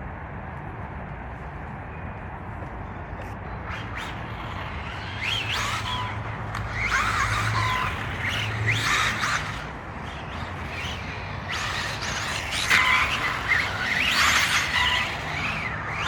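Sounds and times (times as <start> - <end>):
electric toy car motors whining: 3.6 - 16.0.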